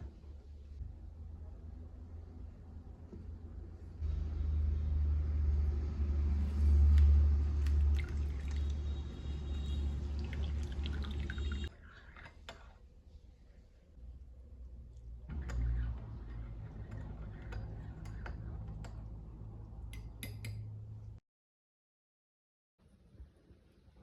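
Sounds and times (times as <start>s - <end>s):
water running with low rumble: 4.1s - 20.0s.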